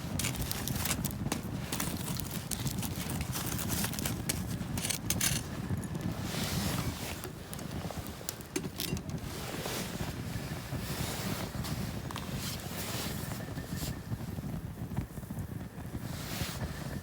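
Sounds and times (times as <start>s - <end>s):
campfire crackling: 0.0s - 10.3s
wind rumbling on microphone: 0.0s - 17.0s.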